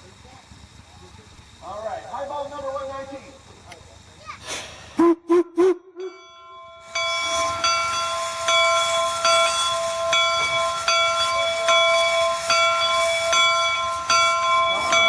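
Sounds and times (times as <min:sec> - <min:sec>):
steam hissing: 0:00.0 - 0:05.8, 0:06.8 - 0:15.0
locomotive bell ringing: 0:05.8 - 0:15.0.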